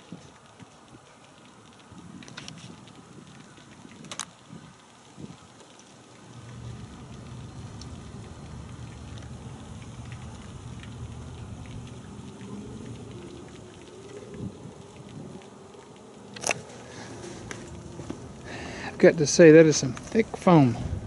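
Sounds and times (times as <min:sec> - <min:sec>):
pressure washer humming: 0:06.2 - 0:21.0.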